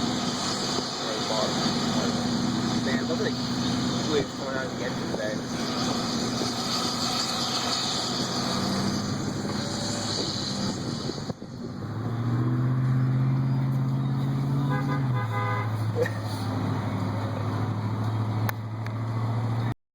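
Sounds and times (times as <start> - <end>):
rushing noise: 0.0 - 15.1
heavy truck engine: 0.0 - 19.8
short horn toot: 14.6 - 16.4.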